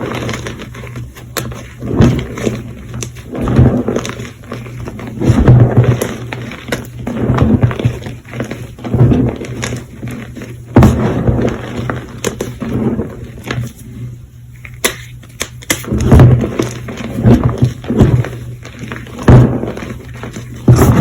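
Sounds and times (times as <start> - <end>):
gym chalk crunching: 14.7 - 21.0.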